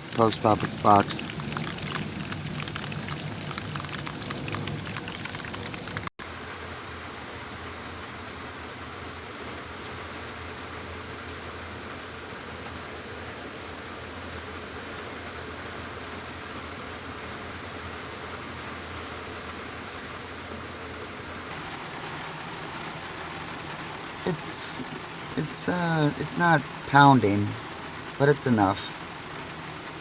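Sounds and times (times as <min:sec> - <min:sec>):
steady rain hissing: 0:00.0 - 0:06.1, 0:21.5 - 0:30.0.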